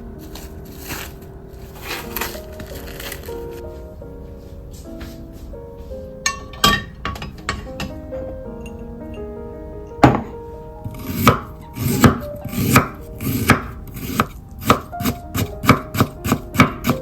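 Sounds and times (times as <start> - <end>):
knife chopping on cutting board: 11.0 - 17.0.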